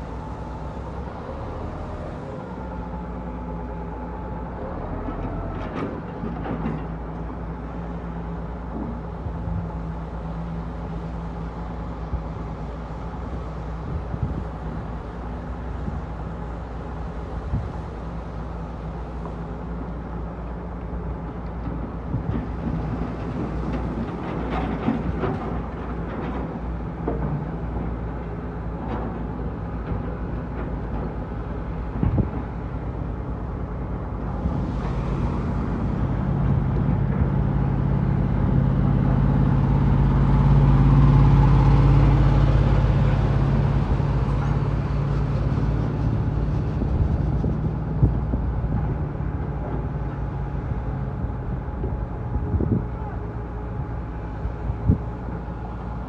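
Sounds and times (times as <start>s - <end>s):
diesel truck engine running: 31.1s - 56.0s.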